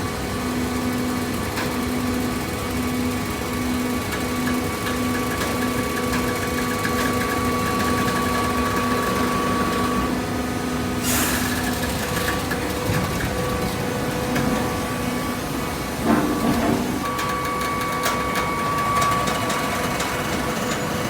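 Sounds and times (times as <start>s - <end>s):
burst of hiss: 11.0s - 11.7s
small gasoline engine running: 11.0s - 13.4s.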